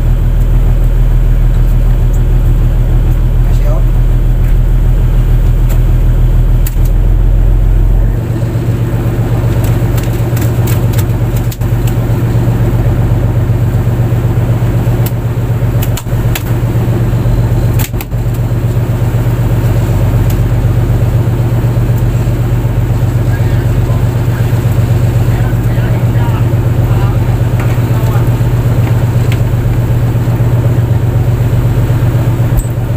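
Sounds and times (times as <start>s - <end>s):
boat engine droning: 0.0s - 32.9s
sharp clicks and knocks: 9.5s - 12.2s, 15.8s - 16.6s.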